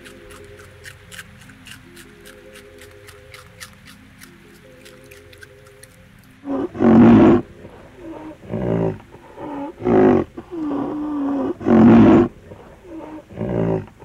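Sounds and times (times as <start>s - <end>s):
big cat roaring and growling: 6.4s - 14.0s.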